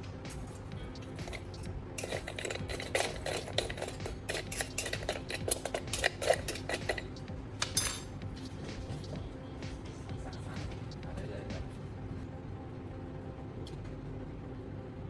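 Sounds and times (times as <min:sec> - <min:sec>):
charcoal clinking against metal: 0:01.2 - 0:08.2.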